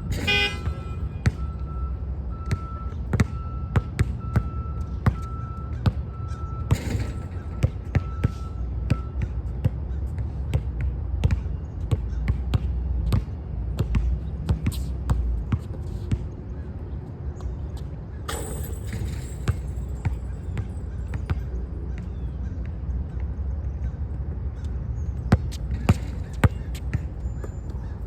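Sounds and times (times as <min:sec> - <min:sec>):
basketball bouncing: 0:00.0 - 0:01.6, 0:02.5 - 0:05.2, 0:06.7 - 0:09.8, 0:18.3 - 0:22.1, 0:25.3 - 0:28.0.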